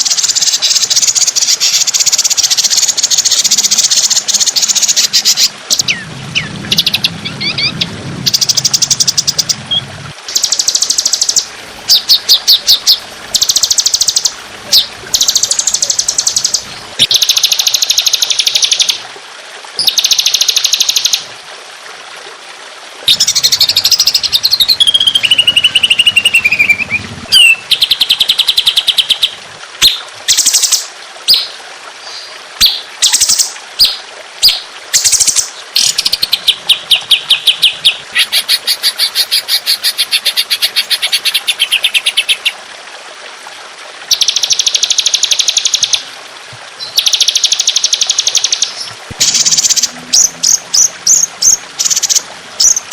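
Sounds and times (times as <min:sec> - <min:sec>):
songbird rattling trills: 0:00.0 - 0:19.0, 0:23.1 - 0:29.2.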